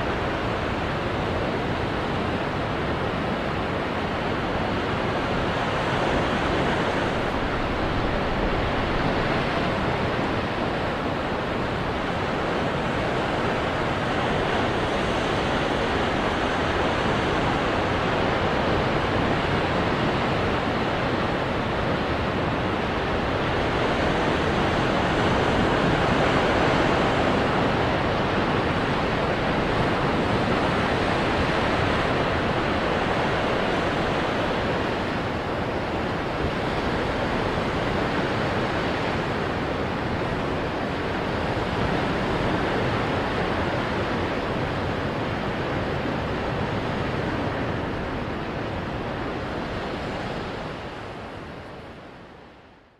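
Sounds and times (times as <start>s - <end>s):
ocean surf breaking on rocks: 0.1s - 51.5s.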